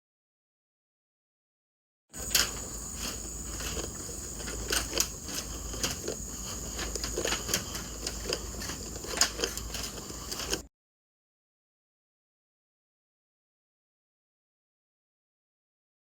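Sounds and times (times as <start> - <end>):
sharp clicks and crackling: 2.2 - 10.6.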